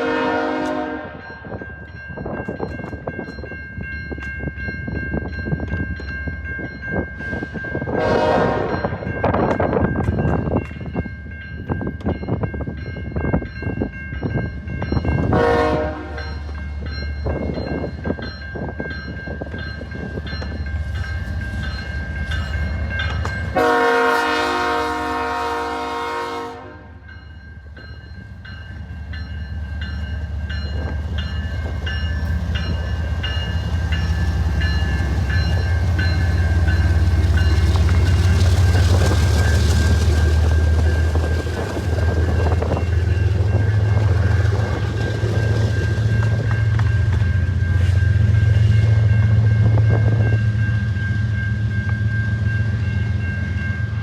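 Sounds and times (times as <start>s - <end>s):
train horn blast: 0.0s - 1.4s, 7.9s - 8.9s, 15.3s - 16.4s, 23.5s - 27.0s.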